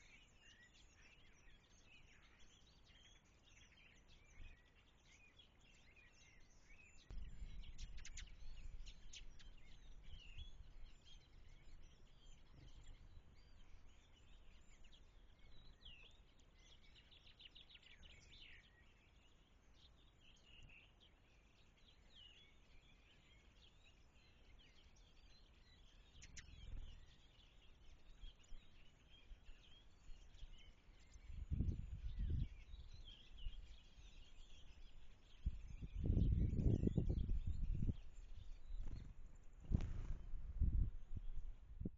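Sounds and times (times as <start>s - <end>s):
birds chirping faintly: 0.0s - 41.9s
low thumps: 39.6s - 40.9s.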